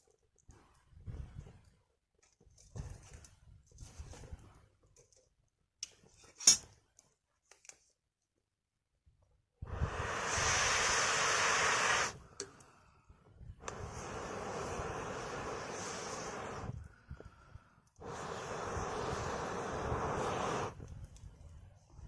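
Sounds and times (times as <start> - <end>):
rushing hiss of air: 9.6 - 12.3, 13.6 - 16.9, 18.0 - 20.9
wood fire crackling: 9.7 - 12.8, 13.6 - 22.0.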